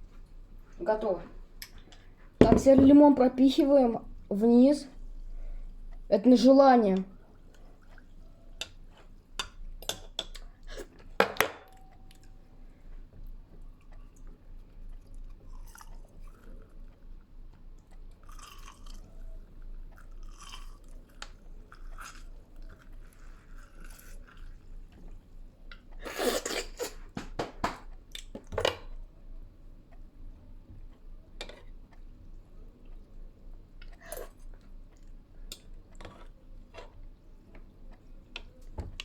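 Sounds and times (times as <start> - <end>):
sharp knocks: 2.4 - 3.0.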